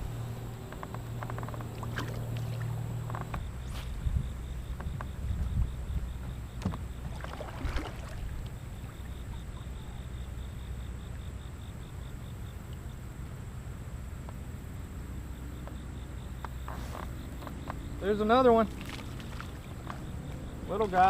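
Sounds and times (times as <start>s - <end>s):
river water flowing: 0.0s - 3.4s, 6.9s - 10.6s, 17.8s - 21.0s
wind on microphone: 3.2s - 8.5s.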